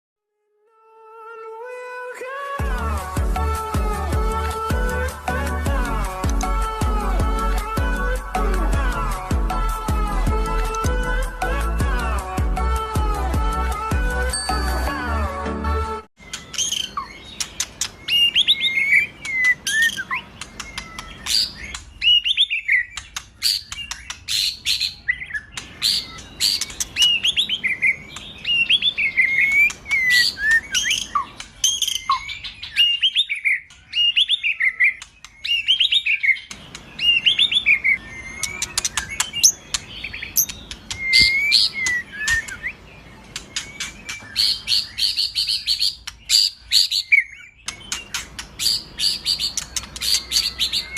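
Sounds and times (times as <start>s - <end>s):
songbird whistling and clicking: 6.2s - 6.5s, 10.6s - 10.9s, 16.2s - 50.9s.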